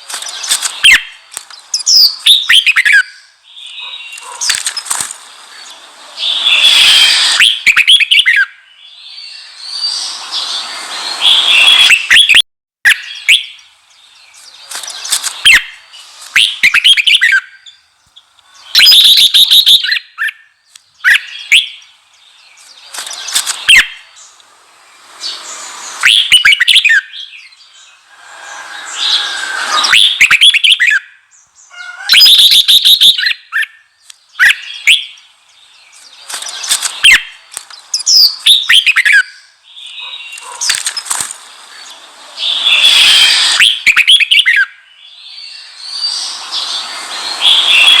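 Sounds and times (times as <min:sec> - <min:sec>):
bird singing warbling phrases: 0:00.0 - 0:48.0.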